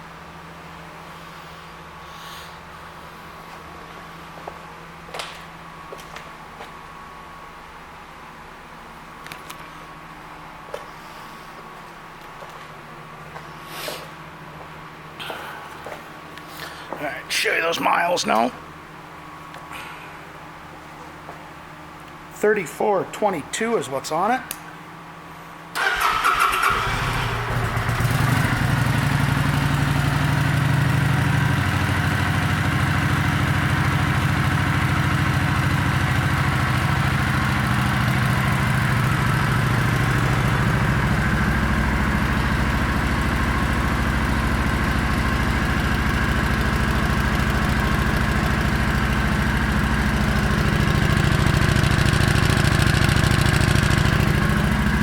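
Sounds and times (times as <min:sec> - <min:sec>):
motorcycle electric starter cranking: 0:25.8 - 0:28.2
motorcycle engine idling: 0:25.8 - 0:55.0.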